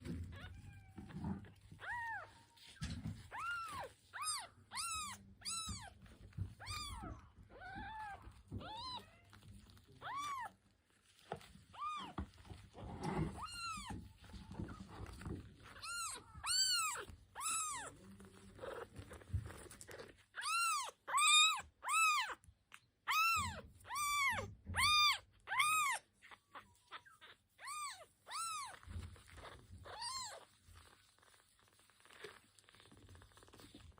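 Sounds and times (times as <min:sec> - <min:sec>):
kitten meowing: 0:00.3 - 0:02.4, 0:03.1 - 0:10.6, 0:13.2 - 0:18.9, 0:20.4 - 0:30.9.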